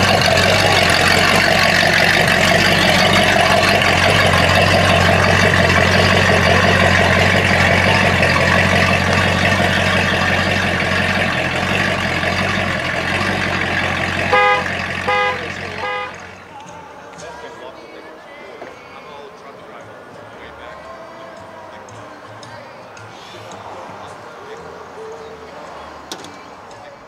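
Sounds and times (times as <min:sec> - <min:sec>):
car engine pulling away: 0:00.0 - 0:27.0
car horn toots: 0:13.1 - 0:16.4.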